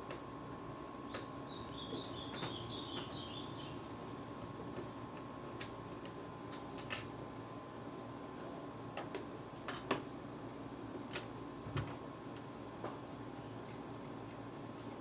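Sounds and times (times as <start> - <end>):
faint steady whine: 0.0 - 15.0
faint high wavering chirp: 1.0 - 3.9.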